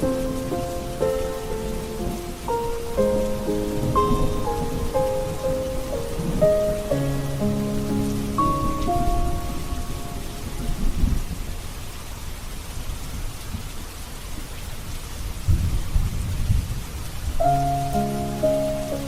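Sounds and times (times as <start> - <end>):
soft music with held notes: 0.0 - 11.5, 17.4 - 19.0
thunder rolling: 0.0 - 11.6
steady rain: 0.0 - 19.0.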